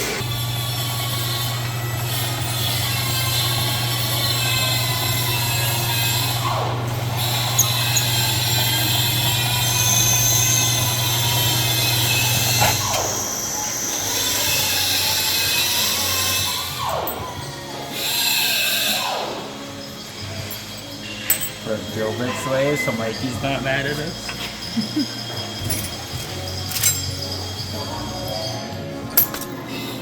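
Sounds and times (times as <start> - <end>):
drill drilling steel: 0.0 - 17.0.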